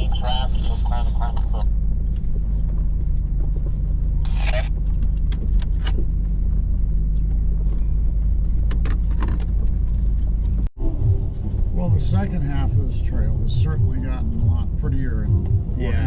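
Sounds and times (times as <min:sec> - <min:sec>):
engine drone inside vehicle cabin: 0:00.0 - 0:16.0
body clicks and rattles: 0:01.7 - 0:10.7.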